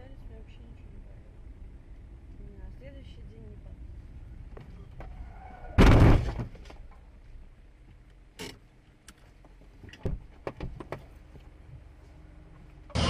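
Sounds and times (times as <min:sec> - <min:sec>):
car rumble: 0:00.0 - 0:13.0
loud thump in car: 0:05.8 - 0:06.7.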